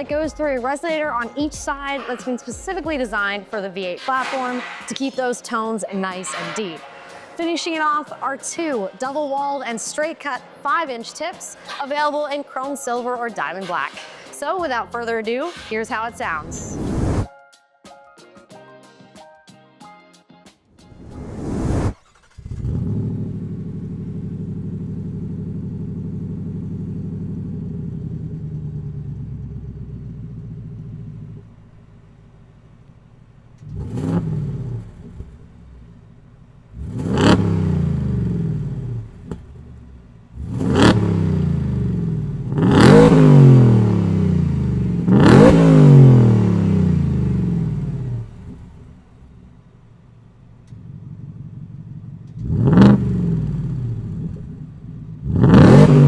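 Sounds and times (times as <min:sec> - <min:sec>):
engine revving: 0:14.9 - 0:17.3, 0:20.8 - 0:31.5, 0:33.6 - 0:49.4, 0:50.7 - 0:56.0.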